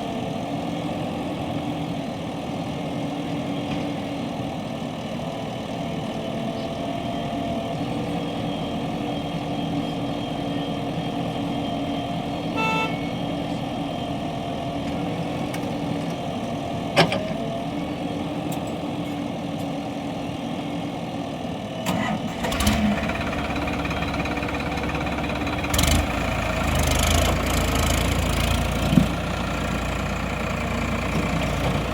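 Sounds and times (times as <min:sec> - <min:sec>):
tractor diesel engines running: 0:00.0 - 0:31.9
short pitched tone: 0:12.5 - 0:13.2.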